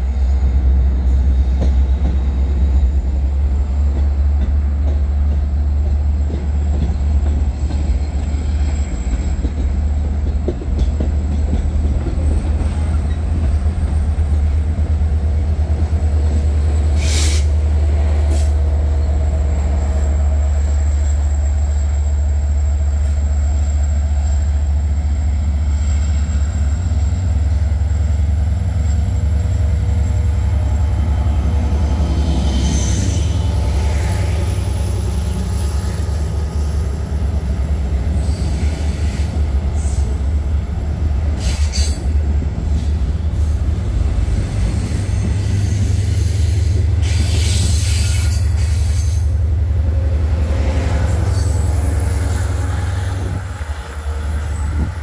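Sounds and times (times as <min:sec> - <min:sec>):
train rumbling slowly: 0:00.0 - 0:55.0
high wheel squeal: 0:44.5 - 0:49.4.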